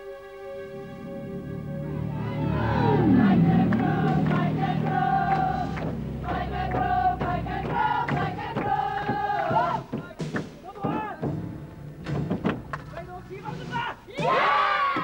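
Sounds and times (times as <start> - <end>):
low sustained note: 0.0 - 9.0
melody of long held notes: 0.0 - 9.5.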